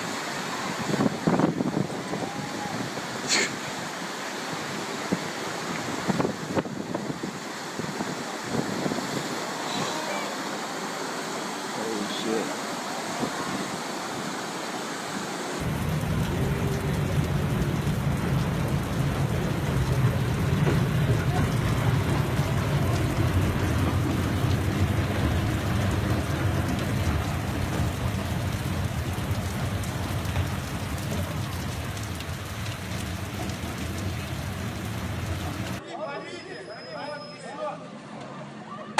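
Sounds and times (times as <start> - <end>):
heavy rain pouring: 0.0 - 35.8.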